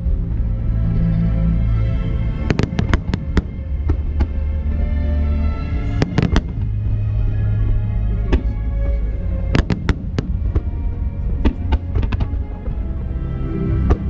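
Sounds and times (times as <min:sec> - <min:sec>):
fireworks bursting with sharp bangs: 0:02.4 - 0:04.5, 0:05.8 - 0:08.7, 0:09.5 - 0:12.7.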